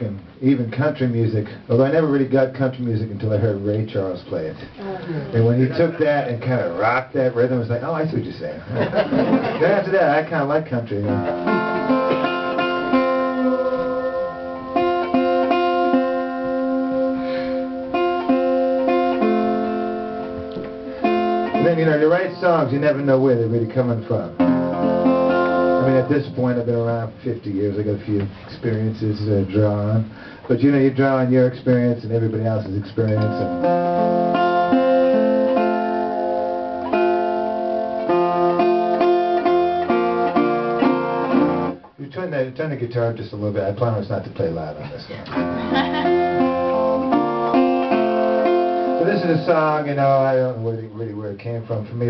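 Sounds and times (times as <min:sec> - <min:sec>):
guitar being plucked: 0:10.9 - 0:27.2, 0:33.0 - 0:42.0, 0:45.2 - 0:49.9.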